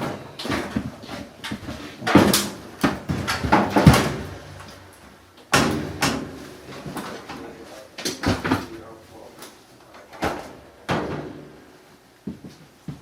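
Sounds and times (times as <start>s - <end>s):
sheet metal knocks and clanks: 2.0s - 4.9s, 5.5s - 6.4s.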